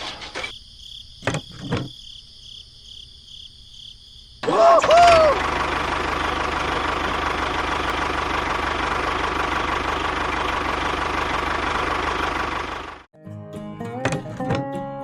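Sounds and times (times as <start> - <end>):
small engine knocking rattle: 5.1 - 13.0.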